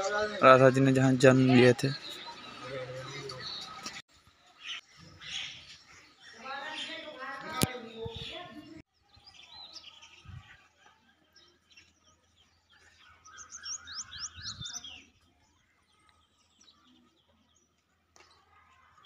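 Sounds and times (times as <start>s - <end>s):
birds chirping: 0.0s - 19.0s
faint outdoor background: 0.0s - 19.0s.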